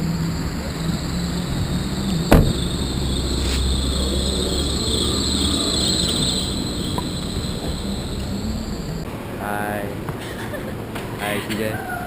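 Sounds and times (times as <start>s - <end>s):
insects chirring: 0.0s - 9.1s
vehicle low rumble: 0.0s - 12.0s.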